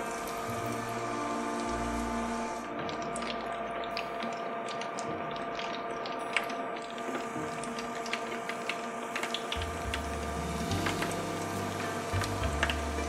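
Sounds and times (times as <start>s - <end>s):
low steady notes: 0.0s - 5.3s, 9.6s - 13.0s.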